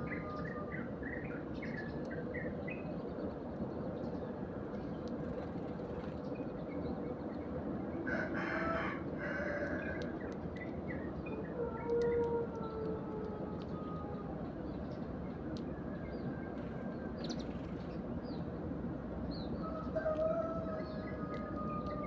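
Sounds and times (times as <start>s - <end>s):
sparrows chirping: 14.6s - 18.6s.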